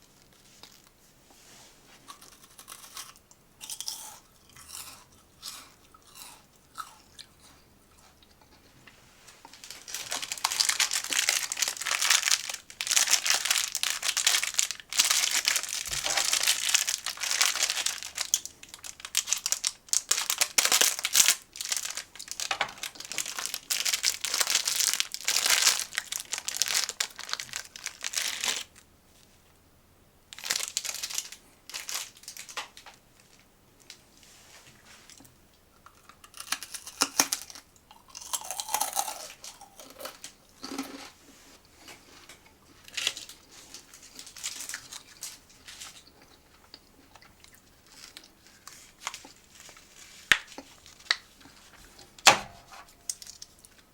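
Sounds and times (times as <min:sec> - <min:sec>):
crunchy snack chewing: 0:02.1 - 0:08.7, 0:35.1 - 0:41.2, 0:42.7 - 0:52.1.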